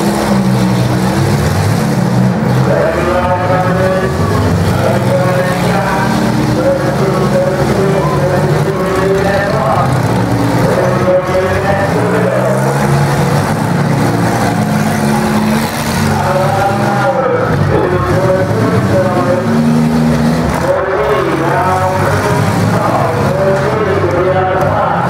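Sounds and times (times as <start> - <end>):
car engines revving: 0.0 - 25.0.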